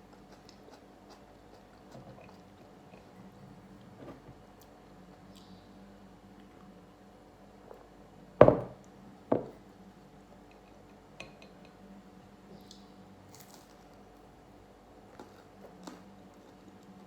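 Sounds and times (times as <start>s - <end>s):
hard objects knocking: 8.4s - 9.6s.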